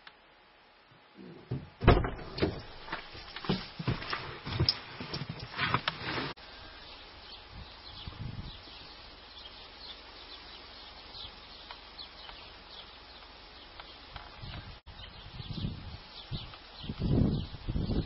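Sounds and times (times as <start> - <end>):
steady outdoor hiss: 0.0 - 18.0
small birds chirping: 6.4 - 18.0.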